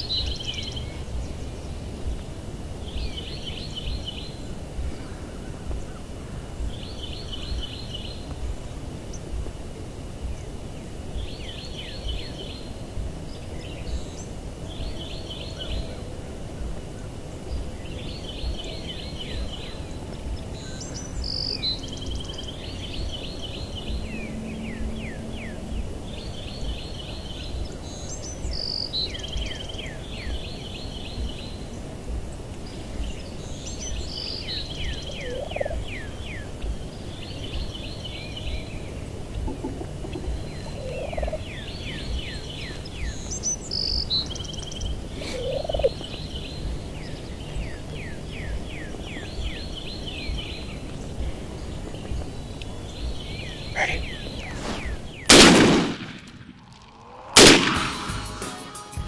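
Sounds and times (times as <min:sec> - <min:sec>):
wind on the microphone: 0:00.0 - 0:57.4
bird calling descending notes: 0:21.2 - 0:27.8.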